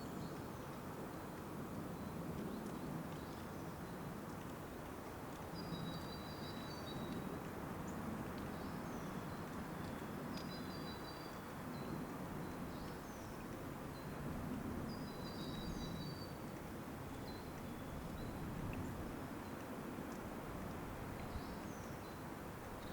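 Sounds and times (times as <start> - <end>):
outdoor background hiss: 0.0 - 22.9
small birds singing: 5.5 - 7.2, 8.5 - 14.2, 14.9 - 19.6, 21.2 - 22.2.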